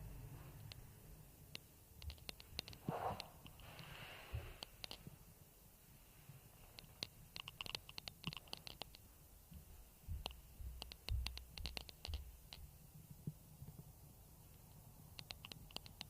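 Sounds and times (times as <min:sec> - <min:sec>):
faint irregular clicks: 0:00.5 - 0:05.6, 0:06.2 - 0:16.0
soft low thumps: 0:09.4 - 0:14.0.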